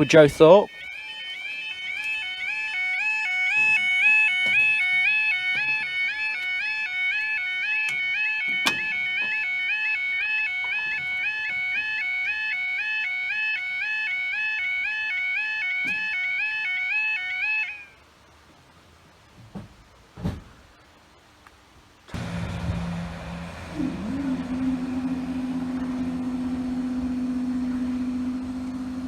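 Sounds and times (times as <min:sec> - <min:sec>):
level crossing two-tone alarm: 0:00.0 - 0:18.0, 0:22.2 - 0:29.0.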